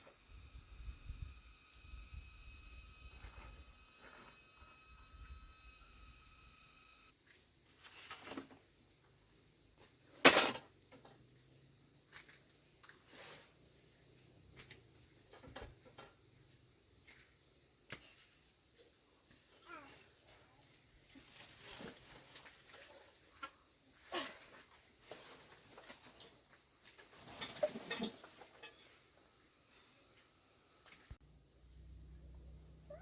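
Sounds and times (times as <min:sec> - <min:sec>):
high-pitched insect drone: 0:00.0 - 0:07.1.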